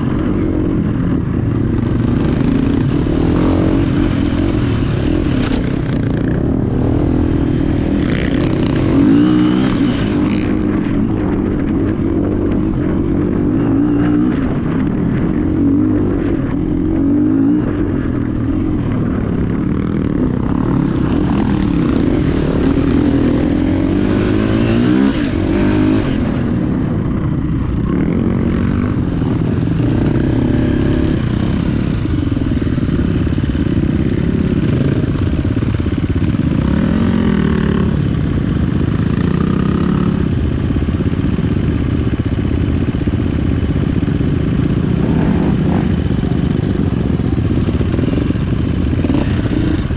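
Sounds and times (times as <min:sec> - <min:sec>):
dirt bike engine revving: 0:01.6 - 0:11.3, 0:19.4 - 0:26.9, 0:27.9 - 0:38.1, 0:44.0 - 0:49.9
clatter: 0:04.1 - 0:06.2.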